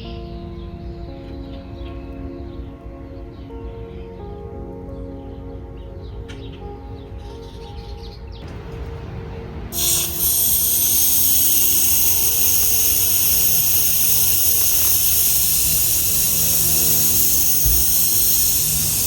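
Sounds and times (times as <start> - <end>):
soft background music: 0.0 - 19.0
steady spraying hiss: 9.7 - 19.0.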